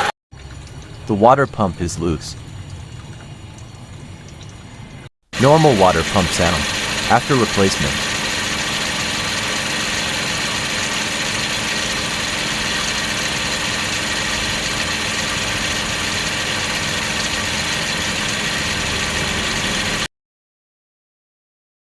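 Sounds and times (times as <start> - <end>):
car engine idling: 5.4 - 20.0.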